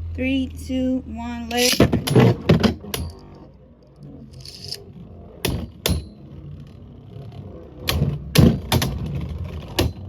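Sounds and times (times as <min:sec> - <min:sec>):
spinning tops clacking: 0:01.5 - 0:03.4, 0:04.3 - 0:04.8
spinning tops whirring: 0:01.5 - 0:08.3.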